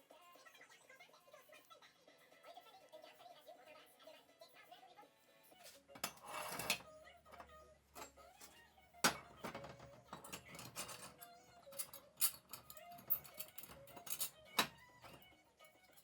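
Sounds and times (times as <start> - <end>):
metal parts clinking: 6.0 - 6.8, 8.0 - 15.3.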